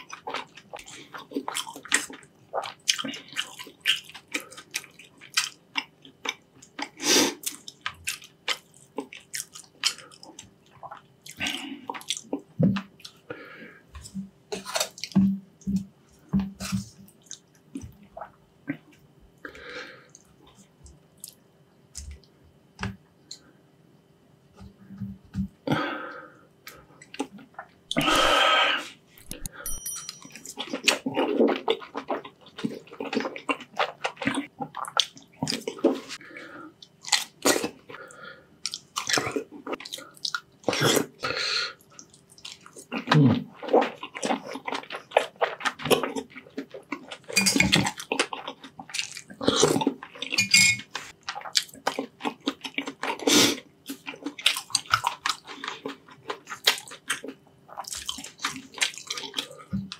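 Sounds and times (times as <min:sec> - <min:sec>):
wet chewing and slurping: 0:00.0 - 0:13.2, 0:30.4 - 0:41.2, 0:41.8 - 0:59.9.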